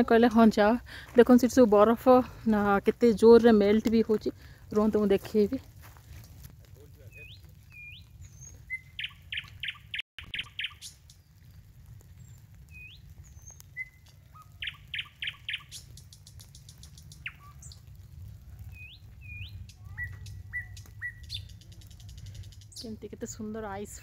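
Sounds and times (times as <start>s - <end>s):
low steady rumble: 0.0s - 24.0s
small birds whistling and trilling: 7.0s - 23.1s.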